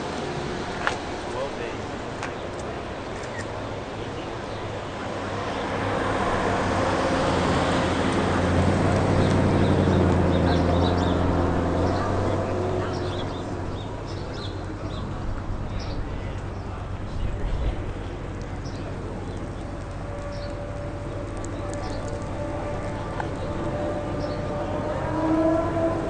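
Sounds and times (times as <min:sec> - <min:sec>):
car driving past: 0:04.9 - 0:17.1, 0:19.6 - 0:26.0.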